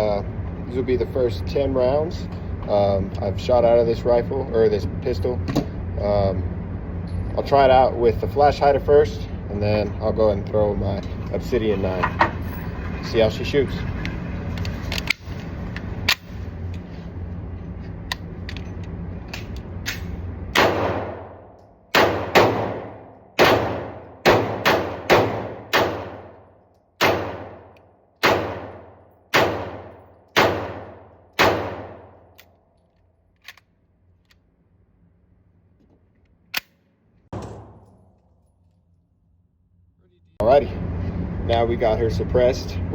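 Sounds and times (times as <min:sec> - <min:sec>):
pistol shots: 0:19.9 - 0:26.4, 0:27.0 - 0:32.4, 0:37.3 - 0:38.2
thump: 0:37.3 - 0:38.0.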